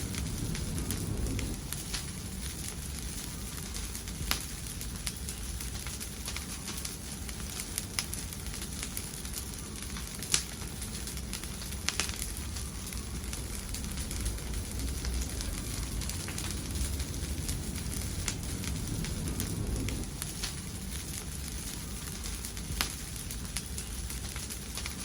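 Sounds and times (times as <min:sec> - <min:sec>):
fire crackles and pops: 0:00.0 - 0:25.0
fire rumble and hiss: 0:00.0 - 0:25.0.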